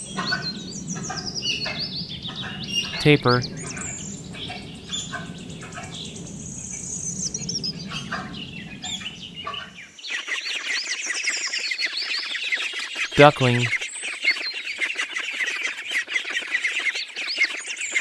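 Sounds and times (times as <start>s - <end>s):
small birds chirping: 0.0s - 13.0s
steady low background noise: 0.1s - 9.7s.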